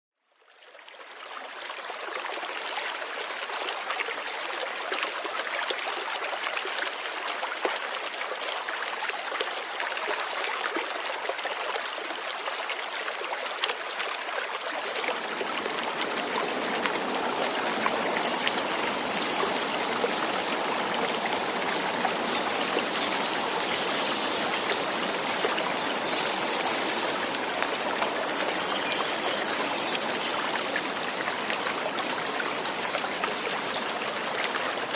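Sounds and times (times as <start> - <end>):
deeper wash of water: 14.7 - 34.9
light rain falling: 14.8 - 34.9.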